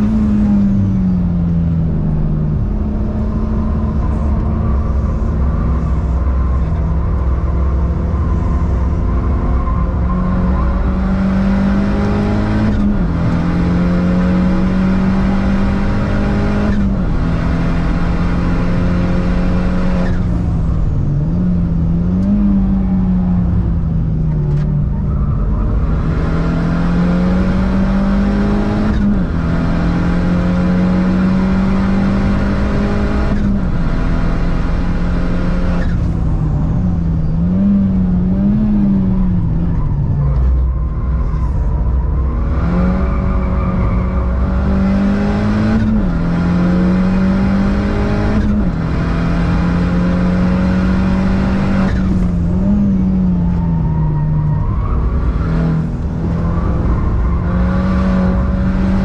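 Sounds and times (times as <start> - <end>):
car engine revving hard: 9.9 - 20.3, 25.7 - 36.2, 42.4 - 53.3, 55.1 - 59.0.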